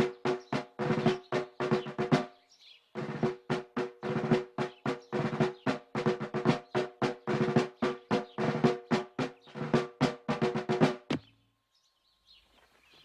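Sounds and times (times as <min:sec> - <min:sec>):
snare drum rolls: 0:00.0 - 0:02.3, 0:03.0 - 0:11.3.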